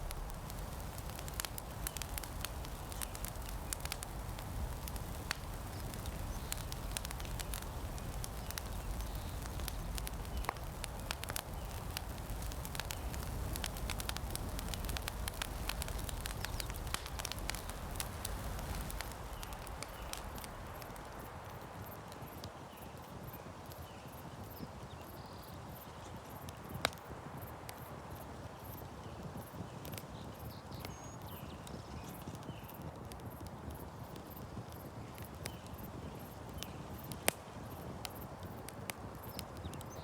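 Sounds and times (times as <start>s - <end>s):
low background rumble: 0.0s - 21.0s
campfire crackling and popping: 0.0s - 24.9s, 25.7s - 40.0s.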